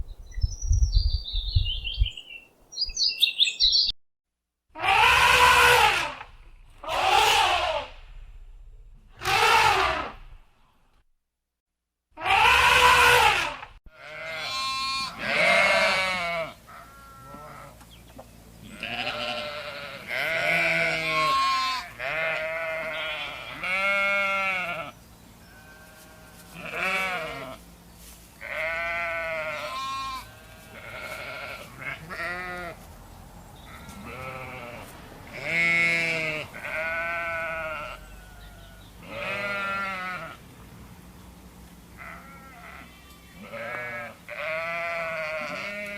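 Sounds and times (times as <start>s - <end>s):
sheep or goats bleating: 4.8s - 8.1s, 9.2s - 10.2s, 12.2s - 17.8s, 18.6s - 27.7s, 28.4s - 32.8s, 33.6s - 40.4s, 42.0s - 45.9s.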